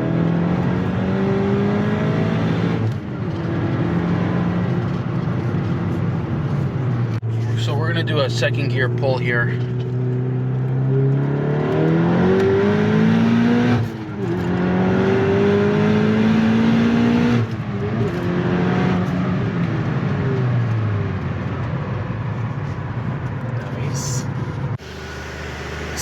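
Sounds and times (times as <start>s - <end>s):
turbocharged car engine revving: 0.0s - 5.0s, 7.0s - 20.3s, 24.0s - 26.0s.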